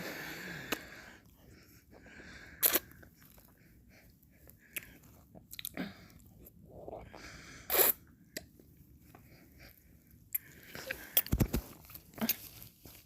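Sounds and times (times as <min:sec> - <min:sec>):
wet slurp: 0:07.7 - 0:08.0.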